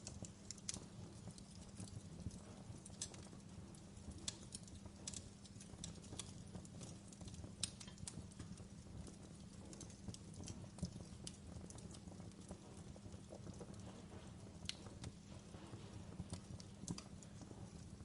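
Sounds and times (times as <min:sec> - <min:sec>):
low rumble of burning: 0:00.0 - 0:18.0
wood fire crackling and popping: 0:00.0 - 0:18.0.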